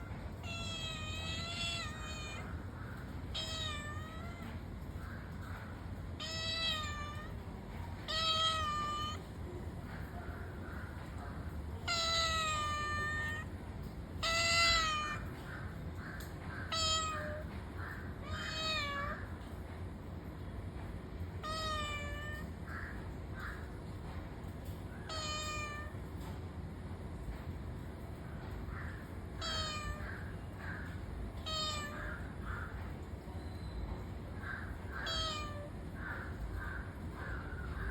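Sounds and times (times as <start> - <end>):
cat meowing: 0.0 - 9.4, 11.0 - 19.5, 21.3 - 23.7, 25.0 - 26.2, 28.6 - 33.0, 34.5 - 37.9.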